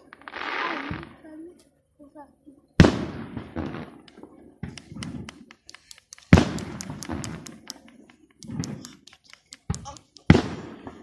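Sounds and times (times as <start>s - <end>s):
fireworks bangs with rolling echo: 0.0s - 1.2s, 2.8s - 9.0s, 9.7s - 11.0s
sharp firework pops: 0.0s - 1.2s, 2.8s - 11.0s.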